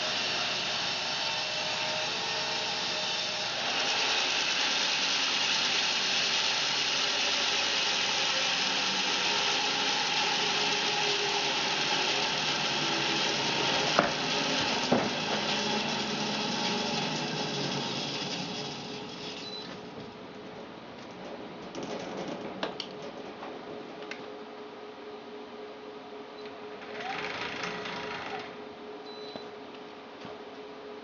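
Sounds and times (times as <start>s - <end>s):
bandsaw whirring through log: 0.0s - 19.6s, 26.8s - 28.6s.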